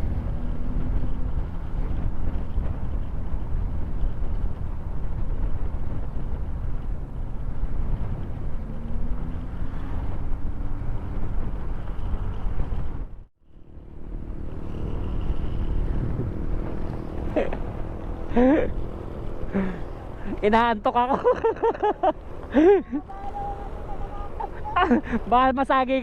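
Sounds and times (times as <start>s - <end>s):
motorcycle engine: 0.0s - 25.6s
wind rushing over microphone: 0.0s - 25.6s.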